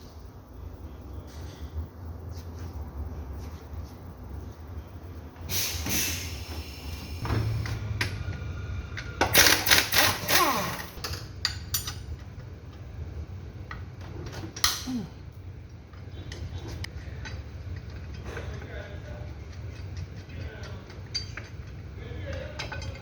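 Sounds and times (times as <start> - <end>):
metal clinking on metal: 9.4 - 12.1, 19.4 - 23.0.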